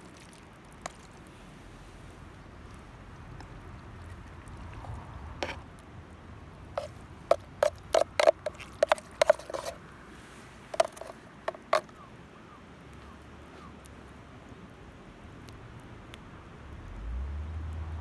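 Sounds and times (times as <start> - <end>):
metal utensil clinking on mess tin: 6.8 - 9.8, 10.7 - 11.9.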